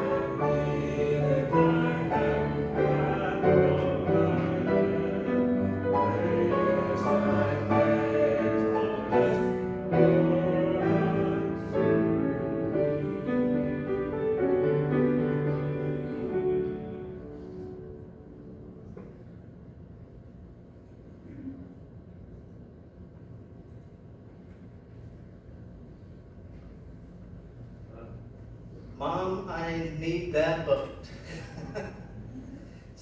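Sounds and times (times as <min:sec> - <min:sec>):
voices singing slow song: 0:00.0 - 0:18.0.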